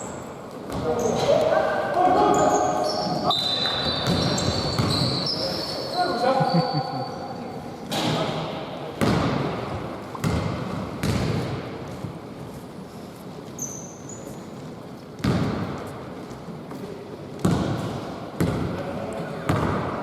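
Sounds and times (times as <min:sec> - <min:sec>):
high squeak: 0:02.2 - 0:07.2
basketball bouncing on court: 0:03.8 - 0:05.2, 0:09.0 - 0:11.6, 0:15.2 - 0:15.8, 0:17.4 - 0:18.8, 0:19.4 - 0:20.0.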